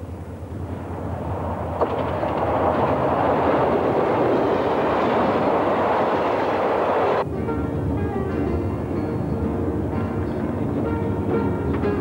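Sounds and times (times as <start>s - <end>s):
train wheels rushing on rail: 0.0s - 7.2s.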